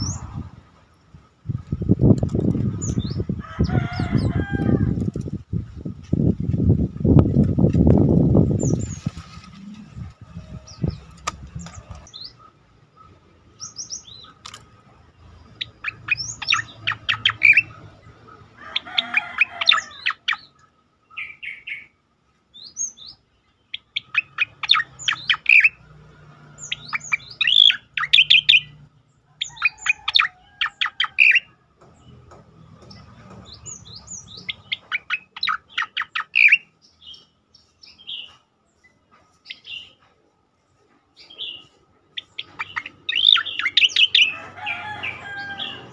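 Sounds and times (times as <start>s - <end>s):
bird rattling song: 1.5s - 9.6s, 15.5s - 17.9s, 23.7s - 25.9s, 26.6s - 28.8s, 29.4s - 40.0s, 41.2s - 45.9s.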